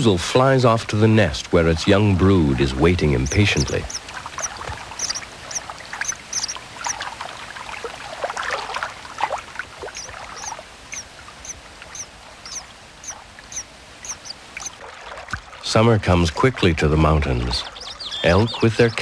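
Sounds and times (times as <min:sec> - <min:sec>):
nestlings begging chirps: 0:03.1 - 0:07.0, 0:09.9 - 0:14.8, 0:17.2 - 0:19.0.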